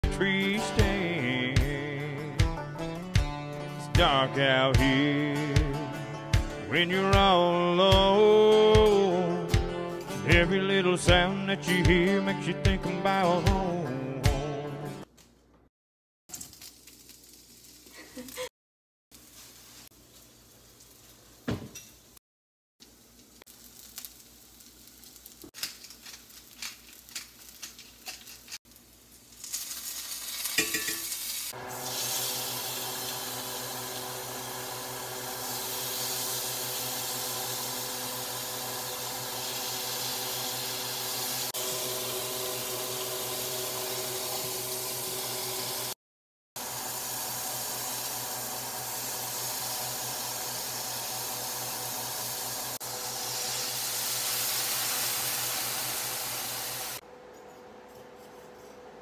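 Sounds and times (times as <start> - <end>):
meat and onions sizzling in a skillet: 16.3 - 18.5, 19.1 - 22.1, 22.8 - 46.0, 46.6 - 57.0.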